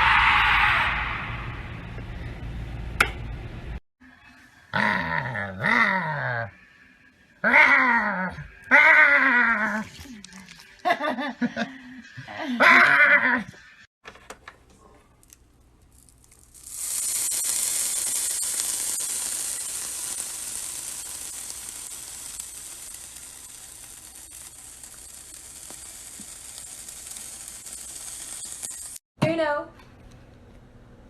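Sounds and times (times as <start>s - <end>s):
food sizzling in a hot pan: 16.0s - 29.0s.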